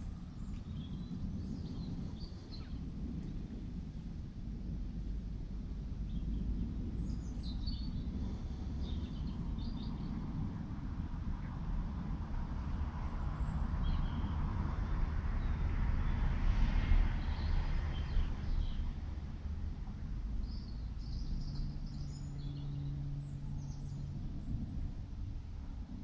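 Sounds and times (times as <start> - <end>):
small birds chirping: 0.0 - 3.6, 5.9 - 10.7, 12.6 - 15.7, 20.4 - 24.9
distant jet roar: 0.0 - 26.0.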